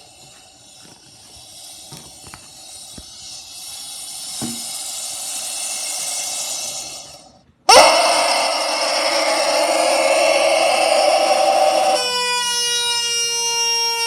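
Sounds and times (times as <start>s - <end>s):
steady hiss: 0.0s - 7.6s.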